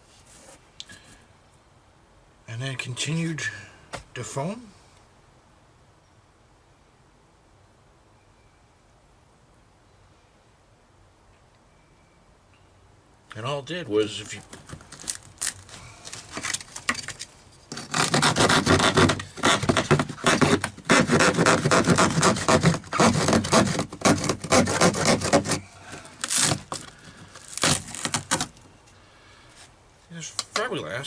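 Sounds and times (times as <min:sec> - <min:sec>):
saw cutting fiberglass: 0:17.7 - 0:25.6.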